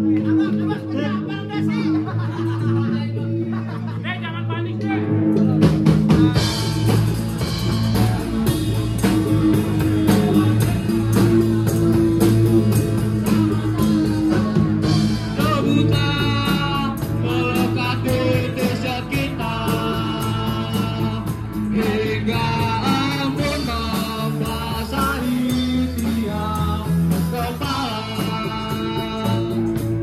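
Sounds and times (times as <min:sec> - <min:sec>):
electric guitar: 0:04.8 - 0:30.0
drum kit beat: 0:05.0 - 0:30.0
person singing: 0:13.3 - 0:30.0.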